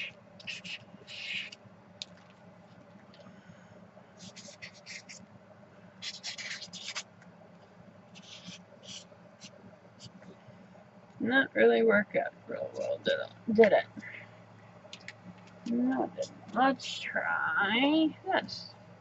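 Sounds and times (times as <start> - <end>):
drawing tool scratching on paper: 0.0 - 1.6, 4.2 - 5.2, 6.0 - 7.0, 8.1 - 10.2.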